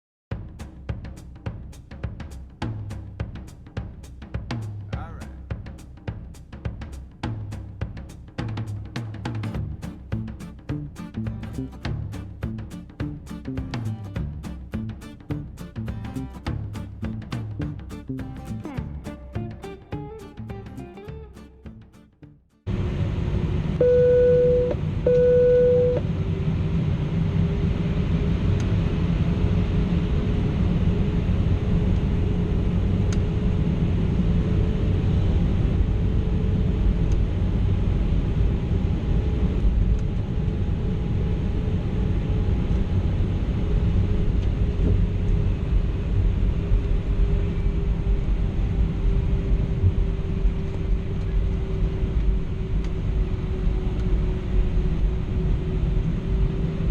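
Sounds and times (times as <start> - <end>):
aircraft cabin engine drone: 22.7 - 56.9.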